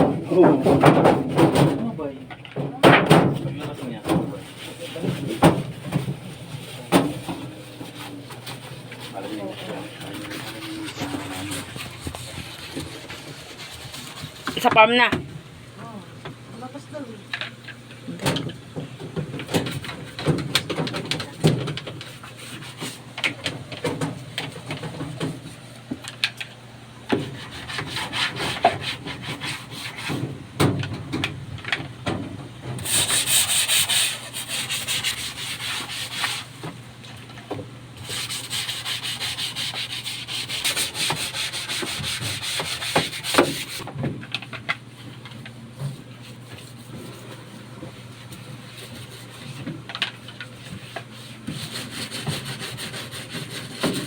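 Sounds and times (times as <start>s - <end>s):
scrubbing and rubbing: 3.4s - 15.1s, 19.2s - 25.9s, 27.1s - 30.4s, 32.7s - 36.8s, 38.0s - 43.9s, 45.7s - 54.0s.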